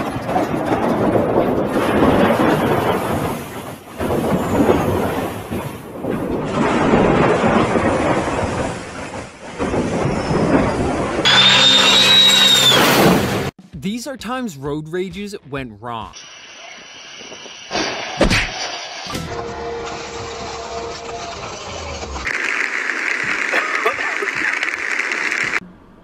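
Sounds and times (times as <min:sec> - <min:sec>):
rumbling vehicle and road noise: 0:00.0 - 0:13.6, 0:16.2 - 0:26.0
high whistle-like tone: 0:11.3 - 0:13.2.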